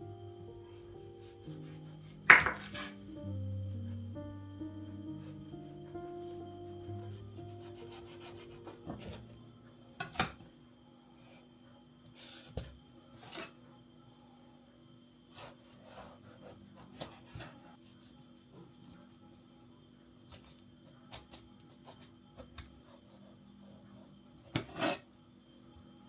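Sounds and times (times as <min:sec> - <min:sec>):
background music: 0:00.0 - 0:09.8.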